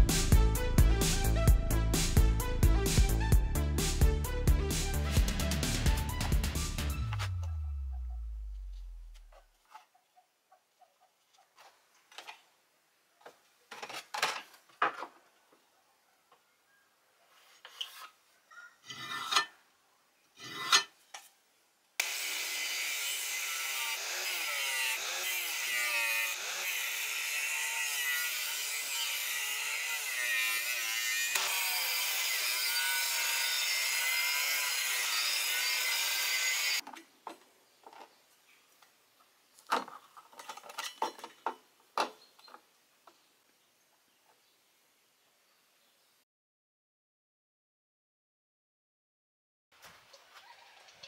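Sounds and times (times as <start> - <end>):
angle grinder grinding metal: 22.0 - 36.8.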